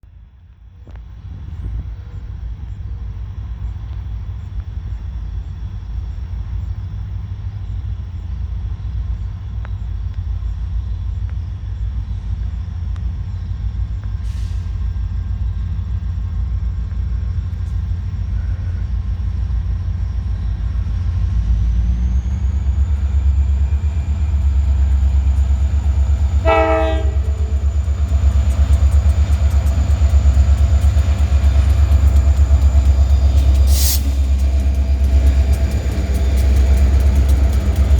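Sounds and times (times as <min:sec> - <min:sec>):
train rumbling: 0:00.2 - 0:37.9
train horn toot: 0:26.0 - 0:28.5.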